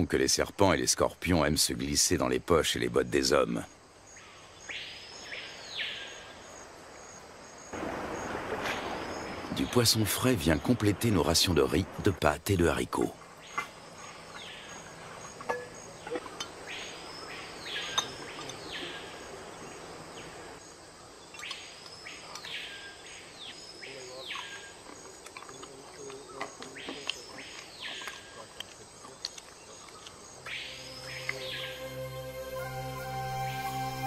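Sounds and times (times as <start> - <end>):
bird whistled calls: 30.5 - 34.0.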